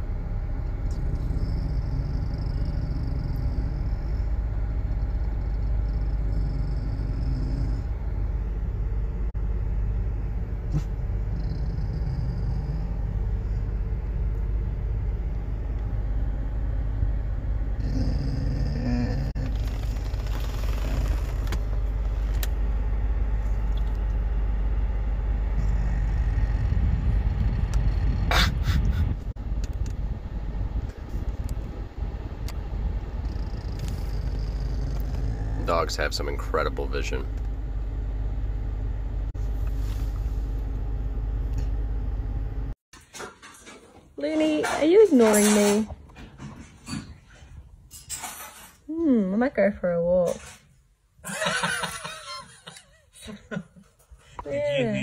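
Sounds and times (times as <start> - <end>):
cat purring: 0.9 - 7.9, 10.7 - 13.9, 33.0 - 37.2.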